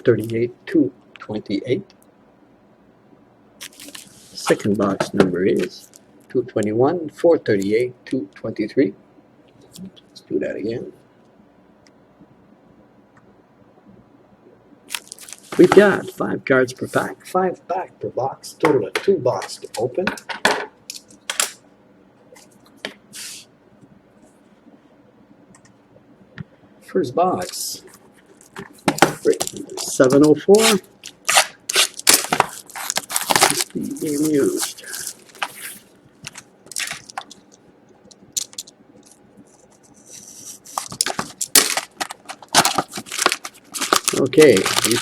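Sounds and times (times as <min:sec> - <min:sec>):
wrapping rustling: 0:03.6 - 0:04.6, 0:14.9 - 0:16.1, 0:27.5 - 0:45.0
cardboard box wrapping crinkling: 0:30.6 - 0:37.5, 0:40.6 - 0:45.0.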